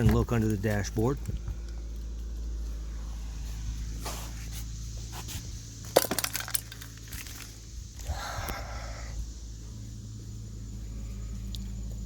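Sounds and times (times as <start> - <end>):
steady low hum: 0.0 - 12.0
metallic clinks and rattles: 5.9 - 7.6.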